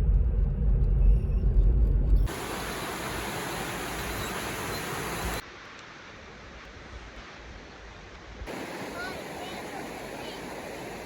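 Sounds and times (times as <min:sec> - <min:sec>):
loud low rumble: 0:00.0 - 0:02.3
rushing hiss: 0:02.3 - 0:06.3, 0:08.5 - 0:11.0.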